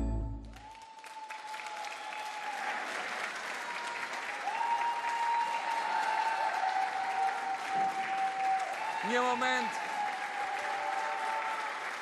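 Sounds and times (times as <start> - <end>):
music with long high notes: 0.0 - 0.7
audience applauding: 0.4 - 12.0.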